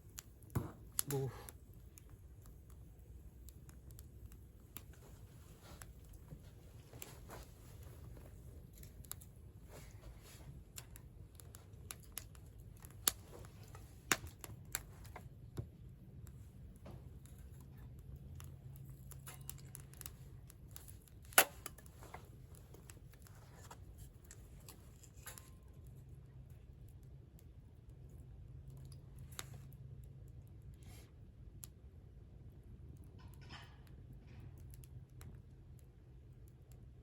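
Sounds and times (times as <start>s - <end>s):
campfire crackling and popping: 0.0s - 29.5s.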